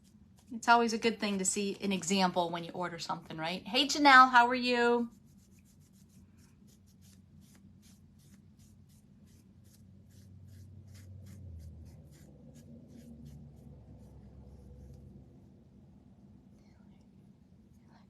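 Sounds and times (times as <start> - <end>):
brush scratching on wood: 5.0 - 15.3
low hum: 8.9 - 18.0.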